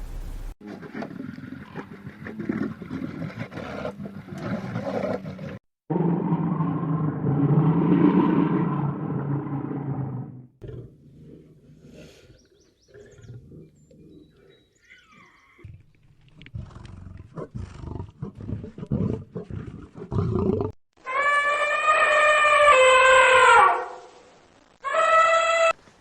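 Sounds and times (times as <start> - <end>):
loud trumpet-like animal call: 21.0 - 24.2, 24.8 - 25.8.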